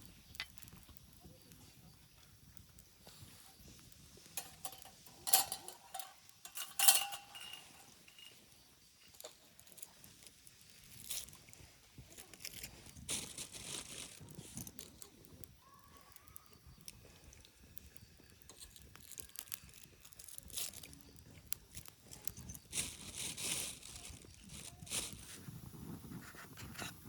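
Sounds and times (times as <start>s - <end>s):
light crackles and rustles: 0.0s - 27.0s.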